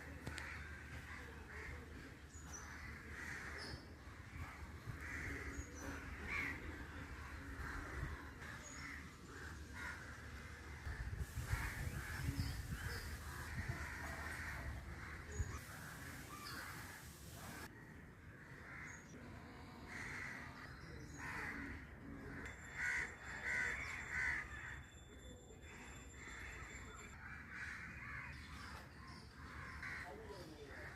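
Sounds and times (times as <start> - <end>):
crows cawing: 0.2 - 24.9, 25.6 - 30.9.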